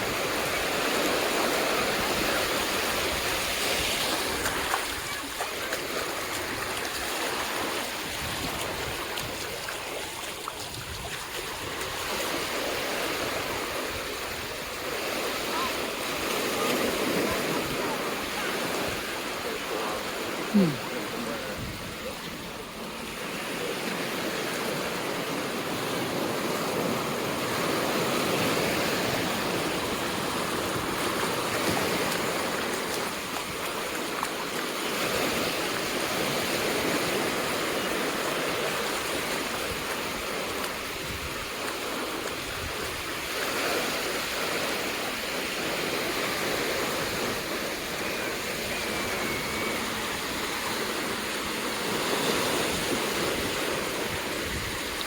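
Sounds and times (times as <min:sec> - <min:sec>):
ocean surf washing onto beach: 0:00.0 - 0:55.0.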